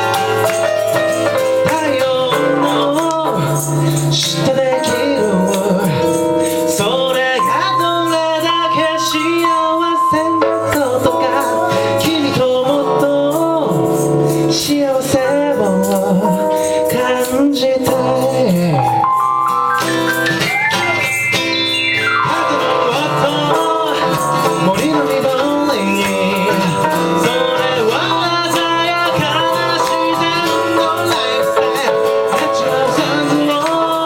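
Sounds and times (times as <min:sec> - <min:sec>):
ragtime blues music: 0:00.0 - 0:34.0.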